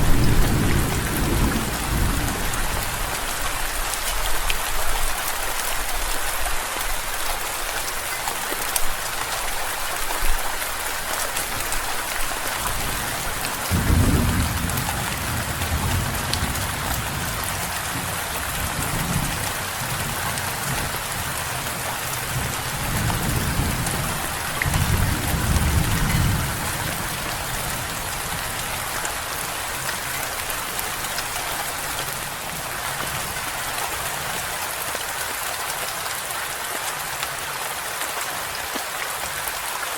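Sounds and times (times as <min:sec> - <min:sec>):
thunder rumbling: 0:00.0 - 0:03.3, 0:12.8 - 0:20.2, 0:22.3 - 0:28.5
steady rain hissing: 0:00.0 - 0:39.9.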